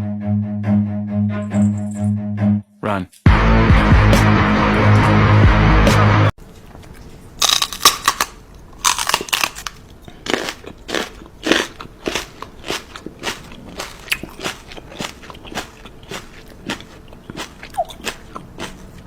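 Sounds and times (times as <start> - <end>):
crunching and chewing: 6.4 - 19.0.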